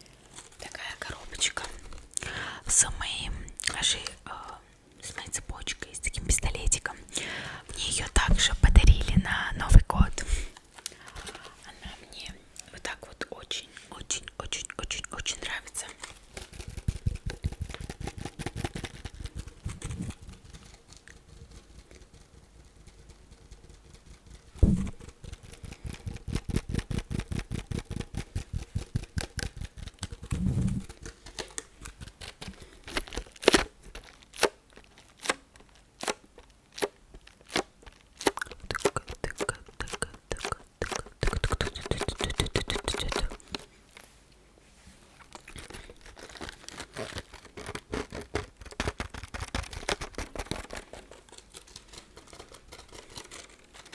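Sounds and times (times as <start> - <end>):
scratching: 15.0 - 35.8, 45.2 - 53.9.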